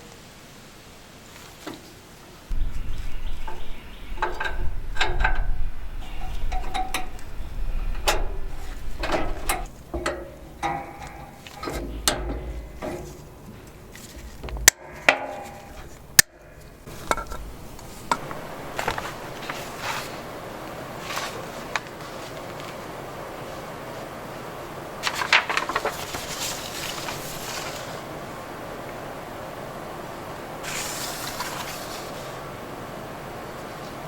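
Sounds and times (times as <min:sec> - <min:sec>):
metal tools clinking and knocking: 0:09.0 - 0:13.3.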